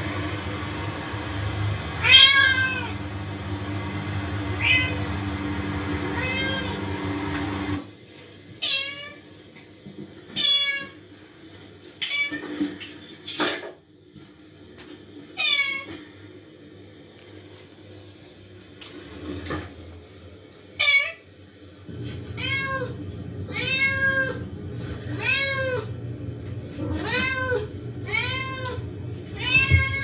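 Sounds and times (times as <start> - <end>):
steady hum: 0.0 - 7.9, 21.9 - 30.0
cat meowing through loudspeaker: 2.0 - 3.0, 4.6 - 5.2, 5.8 - 7.0, 8.6 - 9.2, 10.4 - 11.0, 15.4 - 16.0, 20.8 - 21.2, 22.4 - 24.4, 25.1 - 25.9, 26.9 - 28.8, 29.4 - 30.0.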